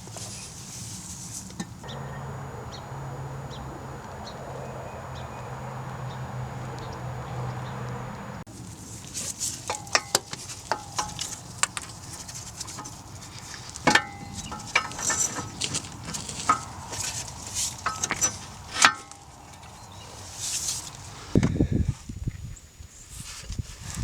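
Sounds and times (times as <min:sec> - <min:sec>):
metal tools clinking: 0:09.2 - 0:19.4.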